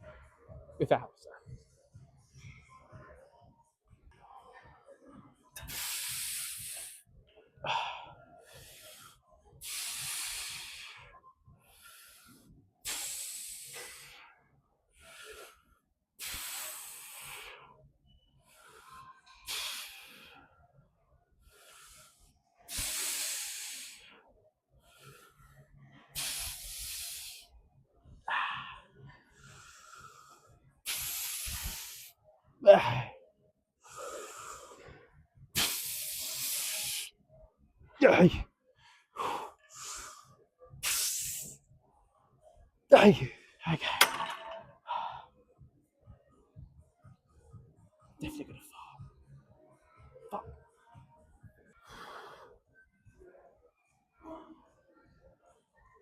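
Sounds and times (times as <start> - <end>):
man breathing hard: 7.6 - 14.3, 15.0 - 17.8, 18.4 - 20.5, 21.4 - 24.2, 24.8 - 27.5, 33.8 - 37.1, 44.8 - 45.4.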